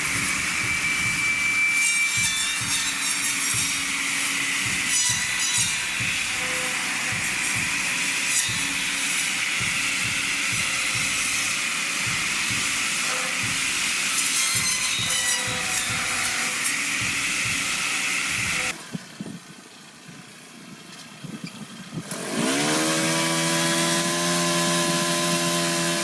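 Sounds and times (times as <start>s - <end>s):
low repeated knocking: 0.0s - 18.8s
tree-cutting machine whining: 0.0s - 19.8s, 21.5s - 26.0s.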